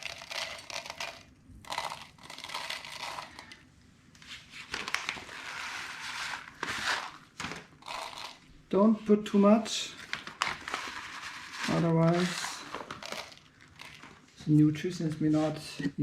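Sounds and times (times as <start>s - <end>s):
seed packet crinkling and rustling: 0.0s - 3.6s, 4.6s - 8.4s, 10.0s - 14.3s.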